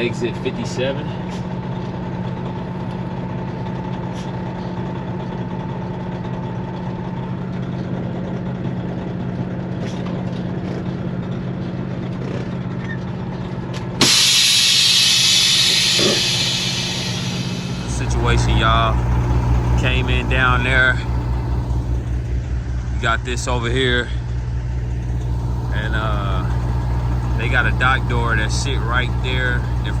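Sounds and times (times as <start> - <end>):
diesel truck engine idling: 13.6 - 30.0
air brakes hissing: 14.0 - 30.0.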